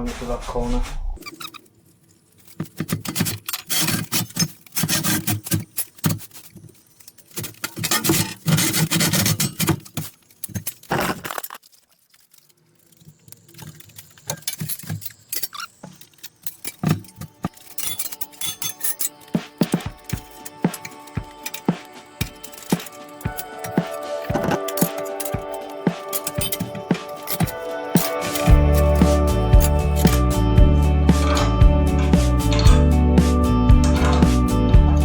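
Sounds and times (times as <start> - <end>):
steel pieces clinking on workbench: 13.4 - 30.2.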